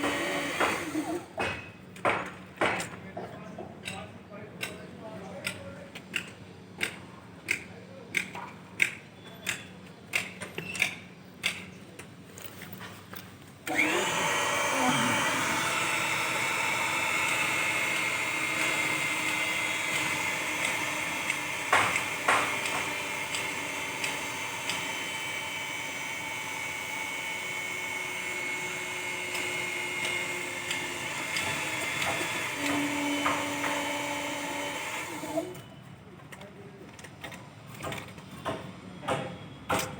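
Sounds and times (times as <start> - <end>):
power tool whining: 0.0 - 1.4, 13.6 - 35.7
sharp knocks: 0.0 - 2.9, 21.7 - 23.0.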